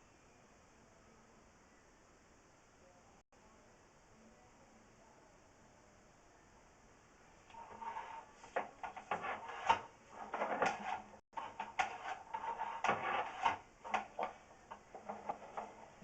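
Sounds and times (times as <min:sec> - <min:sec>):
push cable scraping along a pipe: 0:07.5 - 0:16.0.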